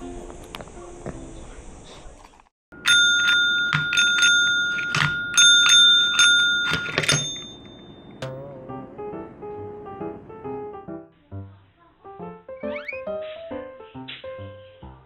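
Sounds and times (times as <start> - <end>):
small metal bell ringing: 2.8 - 8.3.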